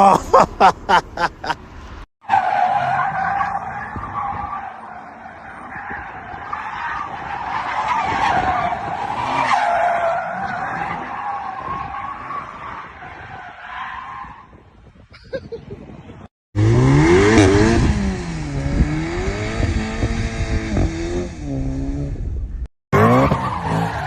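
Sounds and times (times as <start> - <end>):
car tyres squealing: 2.2 - 14.6, 23.0 - 24.0.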